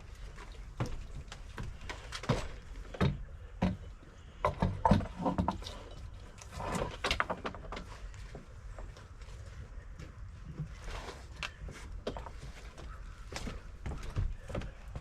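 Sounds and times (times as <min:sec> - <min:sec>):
wooden boards knocking and clattering: 0:00.7 - 0:06.0, 0:06.6 - 0:08.1.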